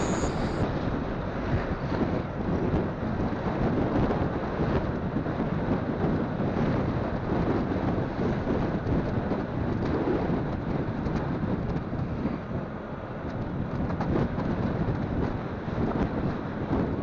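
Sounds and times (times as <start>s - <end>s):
road noise: 0.0s - 0.6s.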